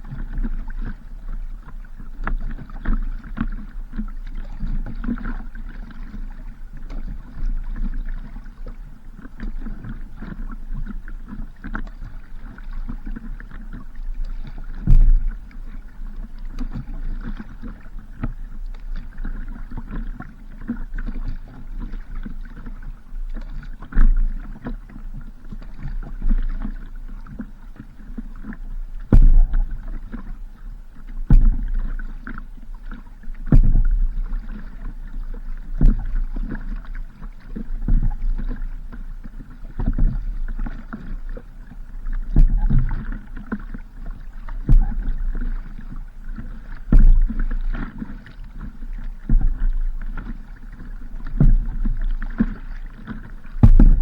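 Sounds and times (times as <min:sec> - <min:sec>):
water sloshing around boat hull: 0:00.0 - 0:54.0
low rumble: 0:29.1 - 0:30.0, 0:53.5 - 0:54.0.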